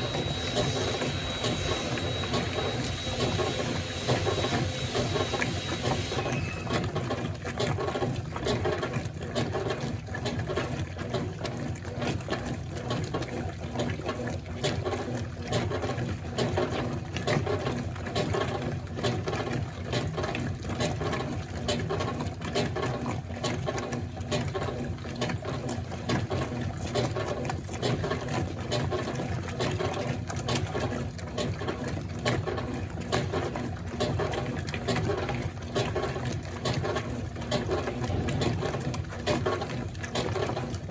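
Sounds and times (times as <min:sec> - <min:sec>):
washing machine sloshing: 0:00.0 - 0:40.9.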